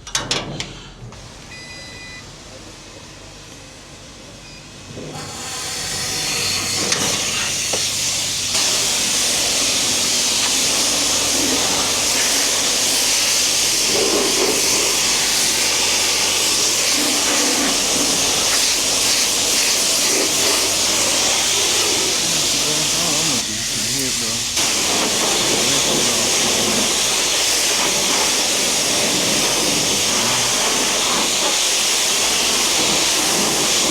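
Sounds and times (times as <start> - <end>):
water spraying onto car: 6.8 - 33.9.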